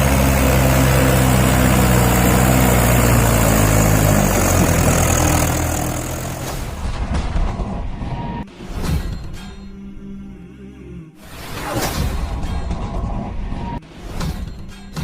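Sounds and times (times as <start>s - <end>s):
tractor diesel engine running: 0.0s - 7.0s.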